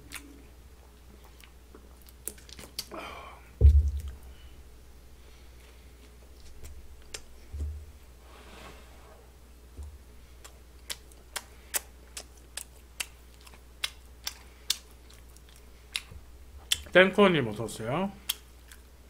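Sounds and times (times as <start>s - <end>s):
crunchy chewing: 0.0s - 2.9s, 10.4s - 16.9s, 18.2s - 18.9s
dull thump: 3.6s - 4.2s.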